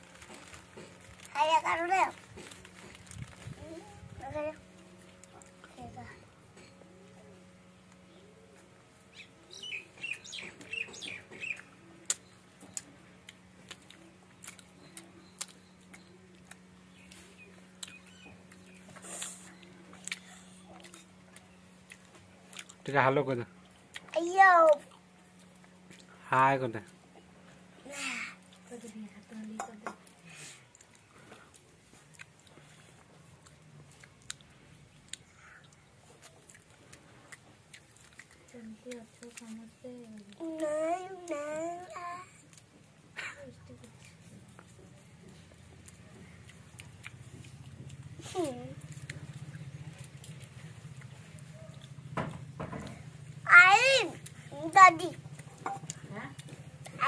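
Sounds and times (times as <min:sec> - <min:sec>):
chewing bread: 0:00.0 - 0:09.1, 0:10.0 - 0:27.8, 0:28.4 - 0:57.0
faint steady hum: 0:00.0 - 0:57.0
bird chirping: 0:09.1 - 0:12.9, 0:14.7 - 0:19.8.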